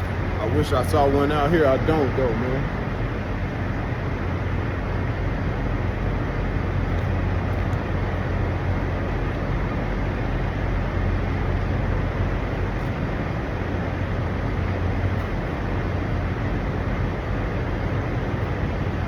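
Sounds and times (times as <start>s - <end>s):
diesel truck engines idling: 0.0s - 19.0s
road noise: 0.0s - 19.0s.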